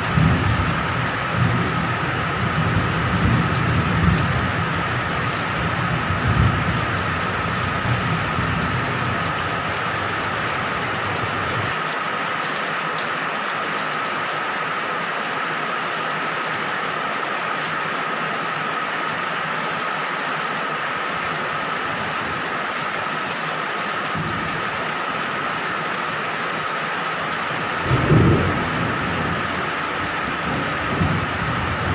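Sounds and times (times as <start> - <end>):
heavy rain falling: 0.0 - 31.9
low rumble: 7.3 - 11.7.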